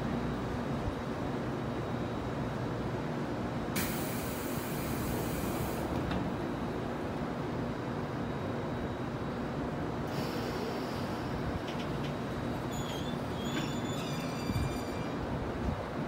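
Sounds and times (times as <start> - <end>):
train equipment hum: 0.0 - 16.0
air hiss of doors: 3.8 - 6.2, 10.1 - 11.9
train doors shutting knock: 10.1 - 15.2.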